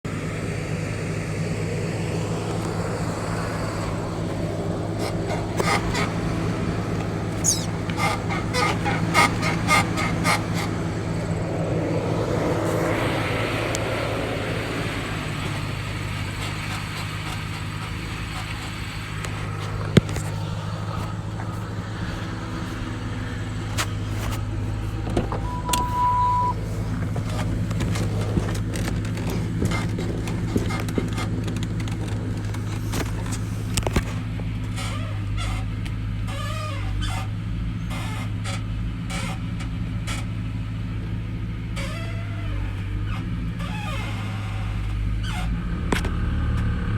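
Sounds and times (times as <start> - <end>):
car engine humming: 0.0 - 46.9
car creaking clicks: 2.1 - 14.0, 15.1 - 40.4, 41.7 - 46.8
short steady beep: 25.4 - 26.6.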